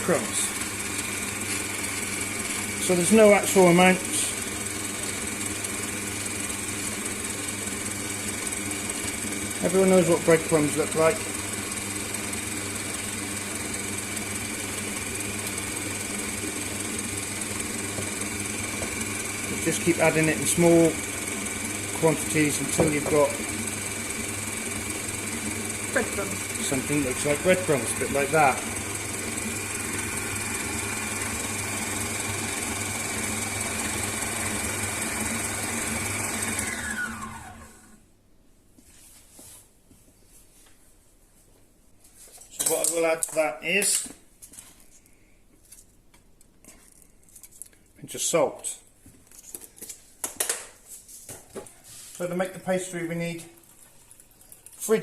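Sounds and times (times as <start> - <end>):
electric kitchen mixer running: 0.0 - 38.0.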